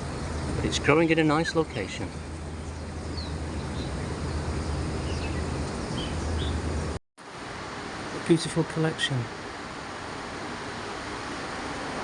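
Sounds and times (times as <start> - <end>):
background noise wash: 0.0 - 12.0
steady low hum: 0.0 - 12.0.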